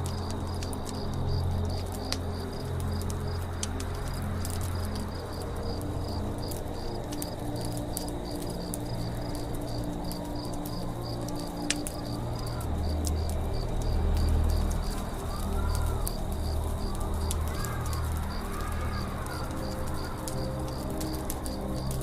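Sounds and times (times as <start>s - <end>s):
campfire crackling: 0.0s - 22.0s
crickets chirping: 0.0s - 22.0s
low steady drone: 0.0s - 22.0s.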